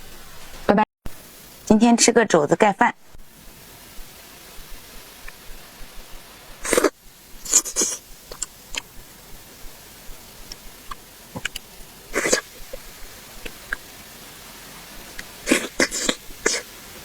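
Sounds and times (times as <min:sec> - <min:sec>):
short noisy bursts: 0:02.9 - 0:17.0
wet chewing and mouth smacks: 0:06.6 - 0:09.0, 0:10.4 - 0:13.9, 0:15.0 - 0:16.7.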